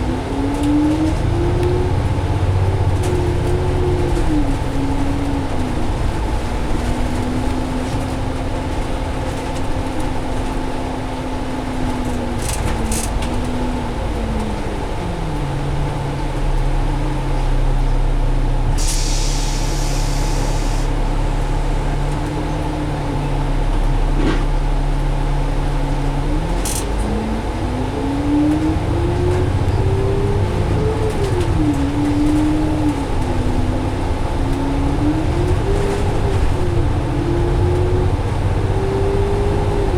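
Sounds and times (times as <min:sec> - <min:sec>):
bus engine whine: 0:00.0 - 0:39.9
air hiss: 0:18.8 - 0:21.0.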